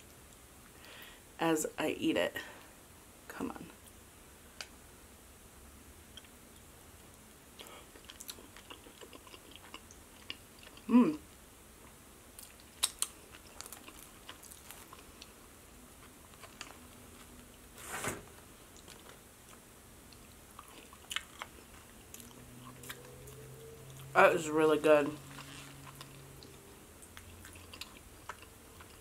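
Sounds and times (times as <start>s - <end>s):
chewing: 7.6s - 10.9s, 12.4s - 15.4s, 18.8s - 24.1s, 25.2s - 29.0s.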